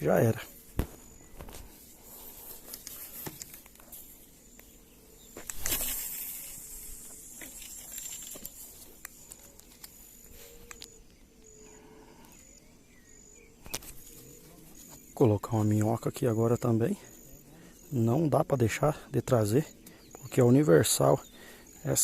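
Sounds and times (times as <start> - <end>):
insect chirping: 0.0 - 22.0
brief rustle: 0.8 - 4.2, 5.4 - 10.9.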